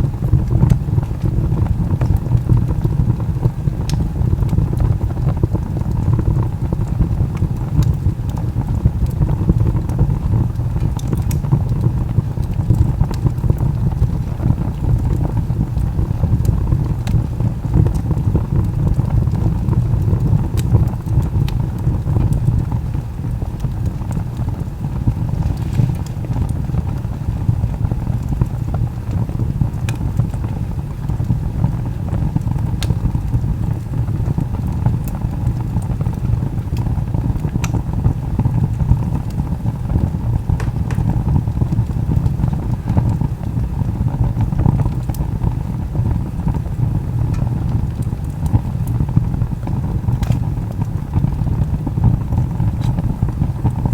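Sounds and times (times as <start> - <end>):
low roar of flames: 0.0 - 53.9
crackling pops from log: 40.5 - 41.3, 50.1 - 50.9.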